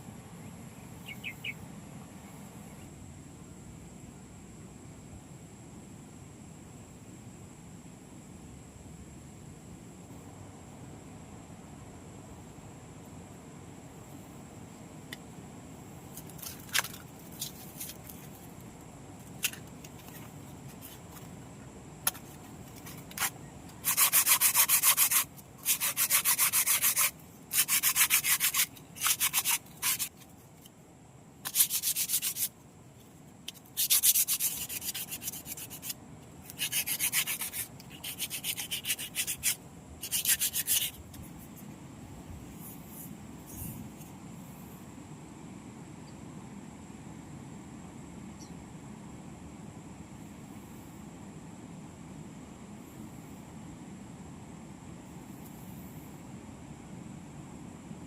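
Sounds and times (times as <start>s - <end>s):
hand sanding rubbing strokes: 22.2s - 30.2s, 31.4s - 32.5s, 33.5s - 41.0s.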